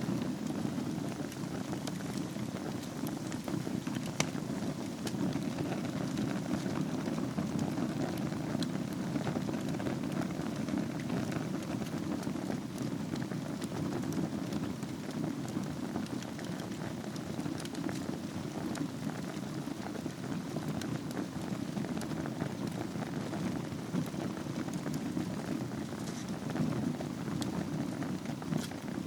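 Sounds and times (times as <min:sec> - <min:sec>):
wood fire burning: 0:00.0 - 0:29.0.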